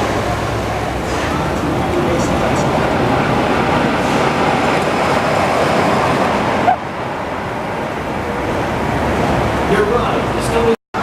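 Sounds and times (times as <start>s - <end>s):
amusement ride rumble: 0.0s - 10.7s
wind rushing: 1.3s - 9.7s.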